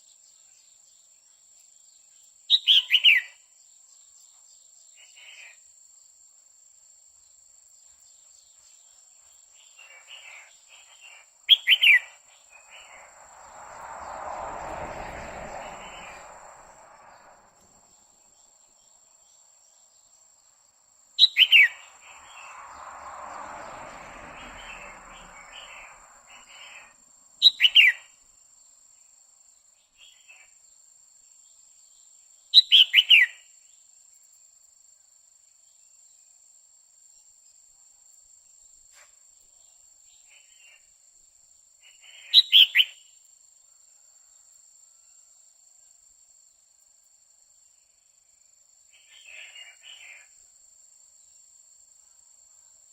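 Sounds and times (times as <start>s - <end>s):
soft rushing noise: 12.3s - 18.2s, 21.7s - 27.0s
bird calling: 21.2s - 22.5s.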